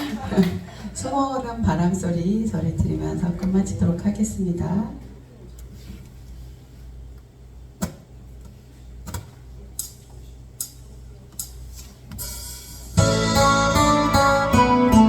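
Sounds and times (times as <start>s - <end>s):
slow ballad with acoustic guitar: 13.0s - 15.0s.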